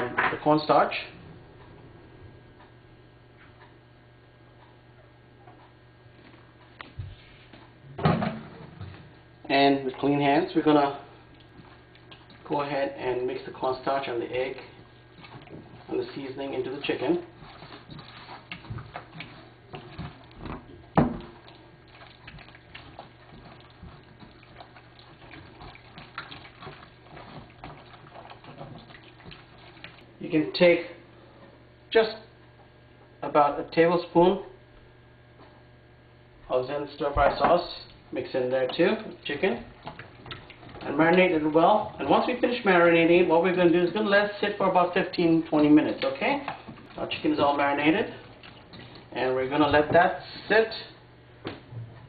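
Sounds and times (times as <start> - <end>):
low electrical hum: 0.0 - 52.0
wet squelches of raw chicken: 14.5 - 30.1, 45.7 - 49.2.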